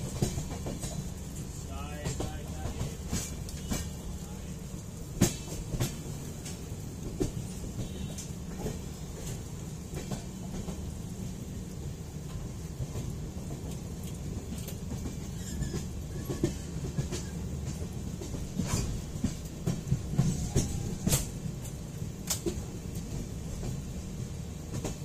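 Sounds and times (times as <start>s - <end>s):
train wheels rumbling on rails: 0.0s - 25.0s
sharp rail clacks: 1.9s - 4.2s, 13.6s - 23.8s.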